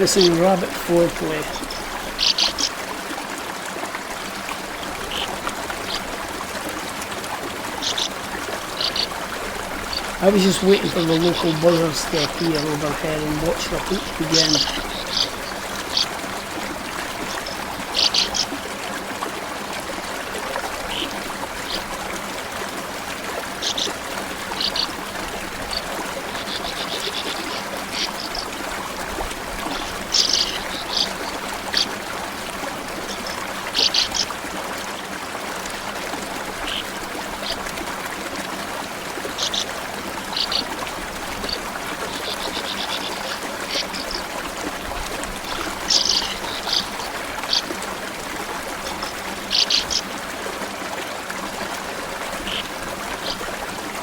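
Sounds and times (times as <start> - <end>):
birds chirping: 0.0 - 2.8, 4.8 - 6.2, 7.7 - 18.6, 20.7 - 22.0, 23.5 - 34.4, 36.6 - 37.6, 39.2 - 44.3, 45.4 - 47.8, 48.7 - 50.1, 52.4 - 53.5
buzzy bird trills: 0.0 - 2.8, 7.8 - 9.1, 9.8 - 16.2, 25.6 - 28.5, 48.9 - 50.1
small river flowing: 0.0 - 54.0.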